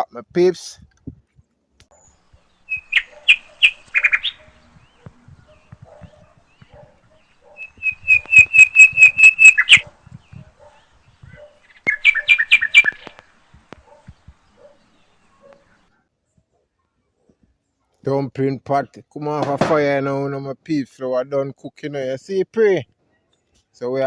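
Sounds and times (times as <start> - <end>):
bird chirping: 1.9 - 18.0.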